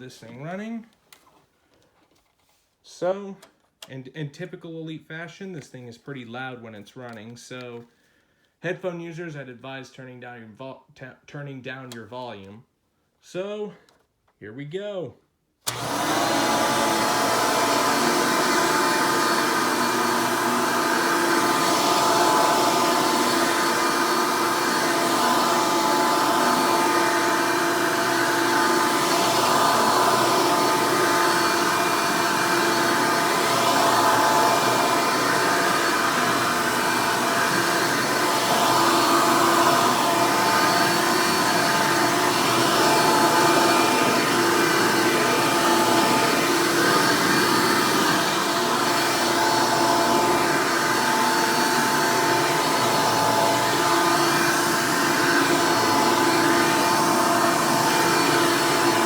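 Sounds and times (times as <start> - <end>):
vacuum cleaner motor whine: 15.6 - 59.0.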